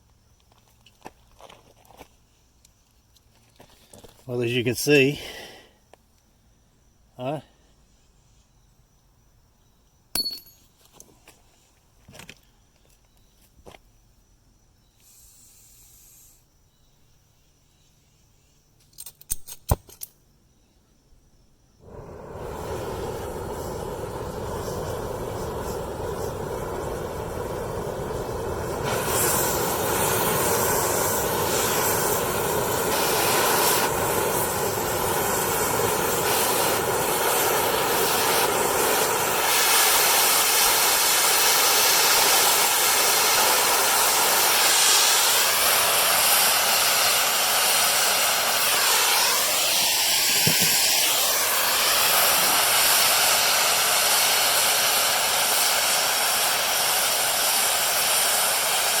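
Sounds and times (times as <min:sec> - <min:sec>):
cutting torch hissing: 0:04.3 - 0:05.7, 0:15.0 - 0:16.5, 0:21.8 - 0:59.0.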